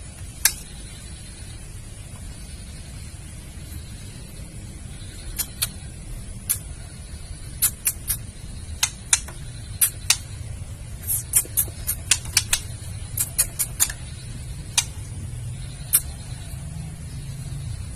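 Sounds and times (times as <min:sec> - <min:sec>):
low steady rumble: 0:00.0 - 0:17.9
bird clicking calls: 0:00.3 - 0:00.9, 0:05.3 - 0:05.8, 0:06.4 - 0:06.7, 0:07.5 - 0:10.4, 0:11.0 - 0:15.2, 0:15.8 - 0:16.2.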